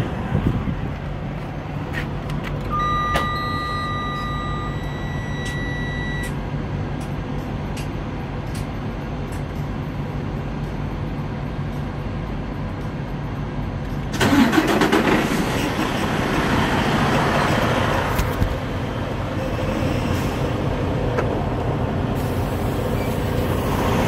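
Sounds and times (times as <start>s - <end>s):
diesel truck engine idling: 6.4s - 24.0s.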